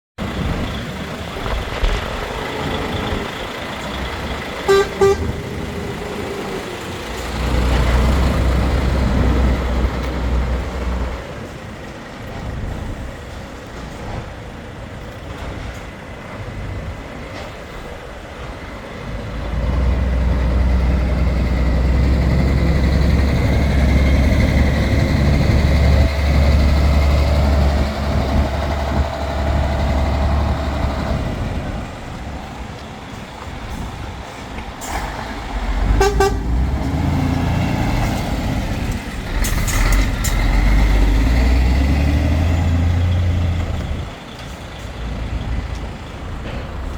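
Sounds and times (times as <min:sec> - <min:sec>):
truck diesel engine running: 0:00.2 - 0:46.9
truck horn toots: 0:04.7 - 0:05.7, 0:35.8 - 0:36.8.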